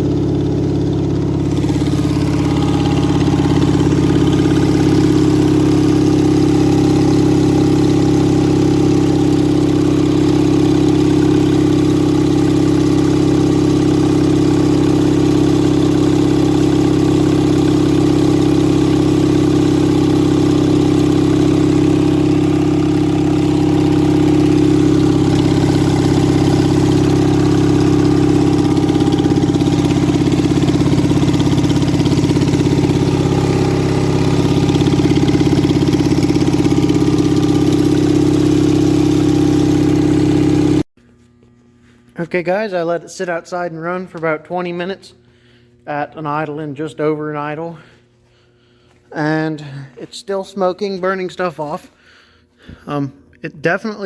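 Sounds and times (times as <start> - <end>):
tractor engine idling: 0.0 - 40.9.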